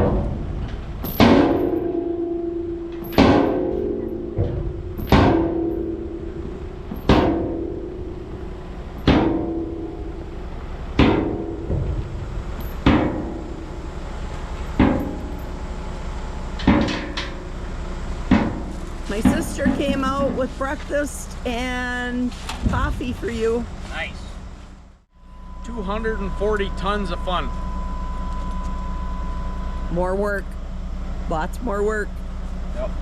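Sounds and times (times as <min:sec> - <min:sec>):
heavy hammer striking steel: 0:00.0 - 0:14.0, 0:14.6 - 0:15.7, 0:16.6 - 0:17.6.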